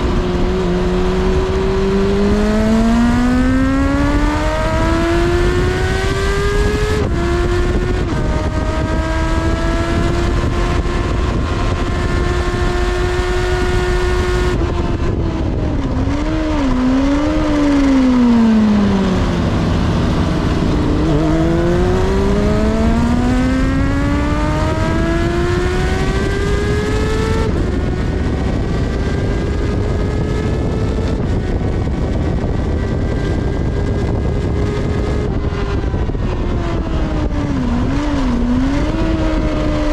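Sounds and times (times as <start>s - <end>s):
motorcycle engine at high revs: 0.0s - 39.9s
steady rushing noise: 0.0s - 39.9s.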